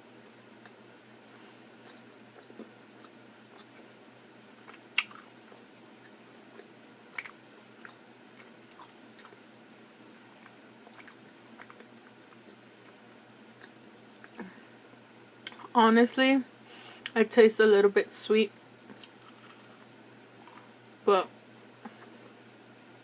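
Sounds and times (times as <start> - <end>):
chewing clicks: 4.6 - 5.3, 6.0 - 9.4, 10.4 - 12.6.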